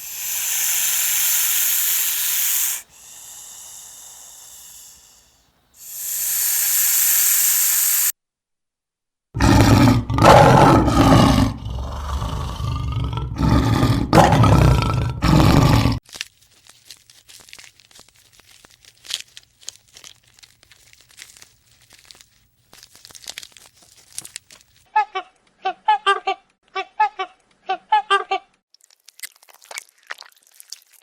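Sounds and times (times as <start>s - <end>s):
big cat roaring: 9.4s - 16.0s
faint ticks and rustles: 16.0s - 25.6s.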